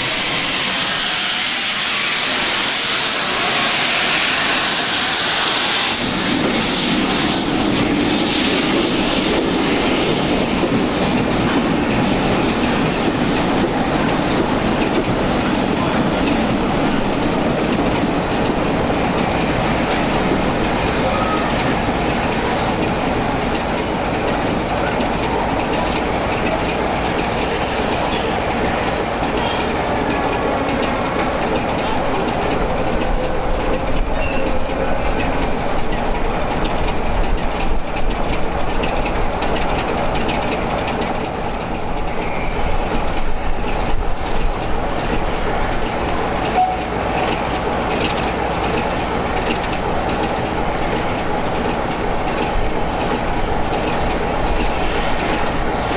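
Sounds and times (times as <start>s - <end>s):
train wheels rumbling on rail: 0.0s - 55.9s
high wheel squeals: 23.4s - 24.7s, 26.2s - 28.4s, 31.4s - 36.0s, 50.7s - 54.9s.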